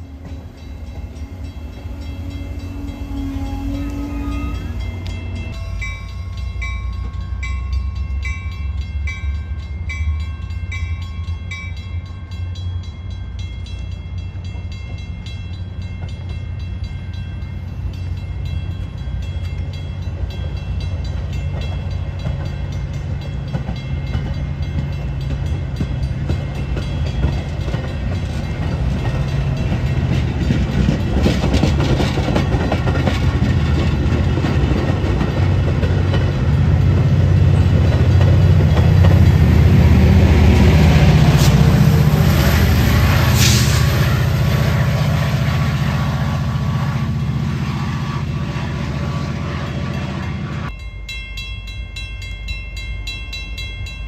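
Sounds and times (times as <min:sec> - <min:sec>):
train rumbling on track: 0:00.0 - 0:54.0
bell ringing: 0:00.3 - 0:21.9.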